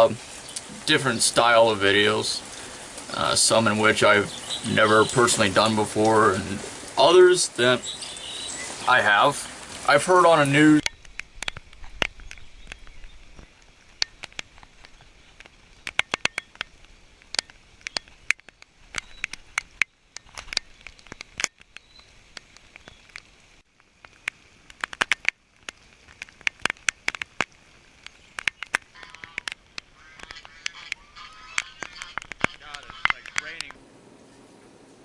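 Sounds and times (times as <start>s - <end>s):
hiss of rain: 0.0s - 35.0s
raindrops ticking near microphone: 0.0s - 35.0s.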